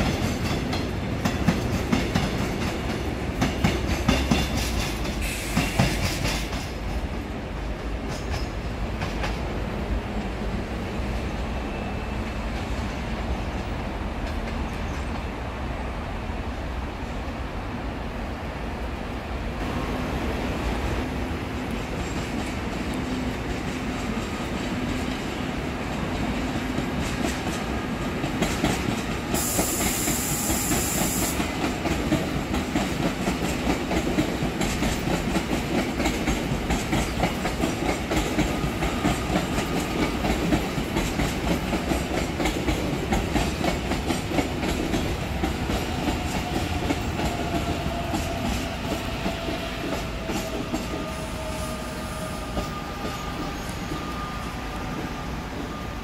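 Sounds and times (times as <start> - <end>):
train wheels clacking over rail joints: 0.0 - 9.5, 26.0 - 51.2
high hiss: 29.3 - 31.5.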